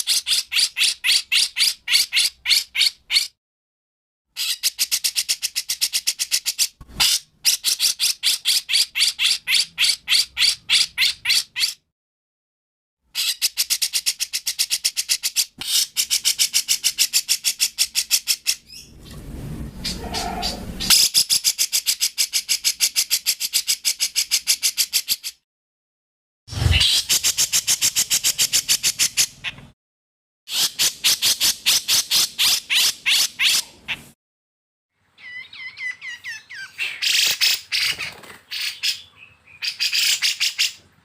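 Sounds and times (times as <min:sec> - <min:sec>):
songbird chirping: 0:19.8 - 0:21.0.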